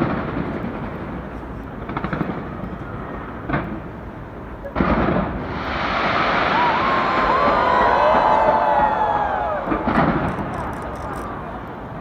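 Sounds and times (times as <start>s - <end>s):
firework crackles: 0.0s - 12.0s
firework bang: 4.8s - 10.6s.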